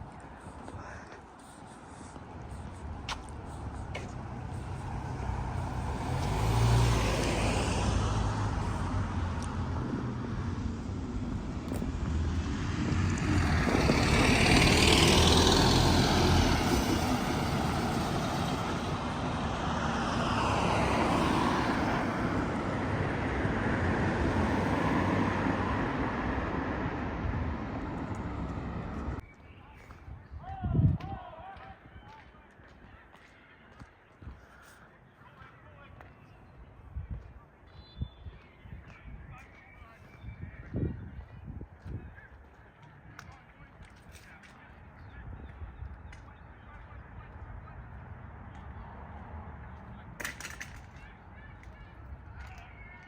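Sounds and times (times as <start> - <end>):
vehicles passing: 0.0 - 30.1, 31.8 - 53.0
low engine hum: 2.2 - 29.2.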